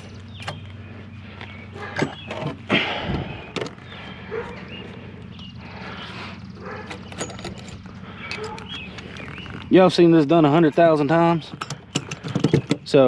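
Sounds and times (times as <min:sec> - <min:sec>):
steady low hum: 0:00.0 - 0:12.9
metal rattle: 0:06.6 - 0:09.6, 0:11.4 - 0:13.0.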